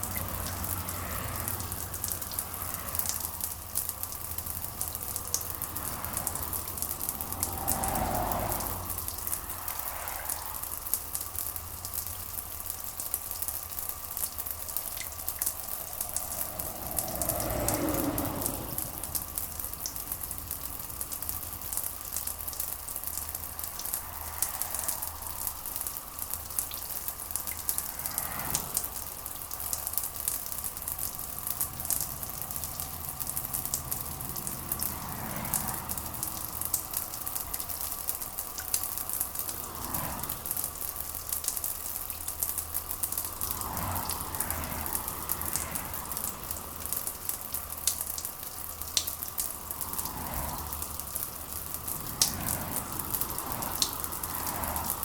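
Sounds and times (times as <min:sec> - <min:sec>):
rain pattering: 0:00.0 - 0:55.0.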